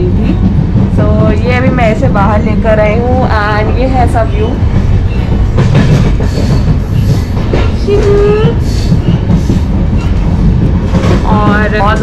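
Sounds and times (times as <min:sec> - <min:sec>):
train wheels rumbling on rails: 0:00.0 - 0:12.0
irregular knocks: 0:04.7 - 0:12.0.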